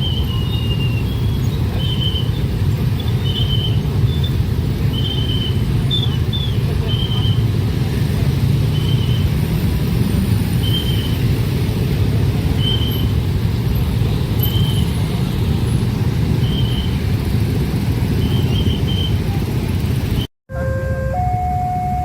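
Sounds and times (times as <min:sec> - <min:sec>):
short high-pitched tone: 0:20.5 - 0:22.0.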